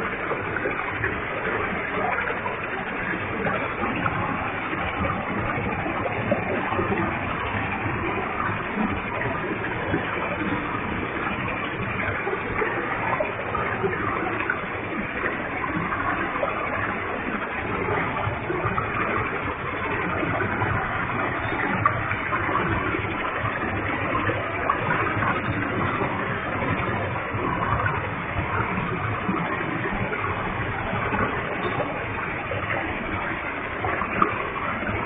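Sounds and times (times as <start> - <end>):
waterfall pouring and splashing: 0.0 - 35.0.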